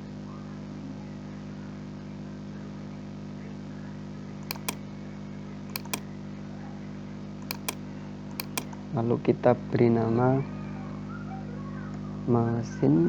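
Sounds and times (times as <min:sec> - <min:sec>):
computer mouse clicks: 0:04.5 - 0:04.8, 0:05.8 - 0:06.0, 0:07.4 - 0:07.8, 0:08.4 - 0:08.8.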